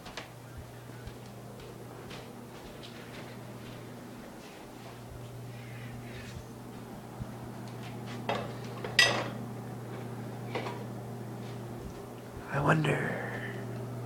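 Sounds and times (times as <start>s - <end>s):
steady low hum: 0.0s - 14.0s
dishes clinking: 8.3s - 9.4s.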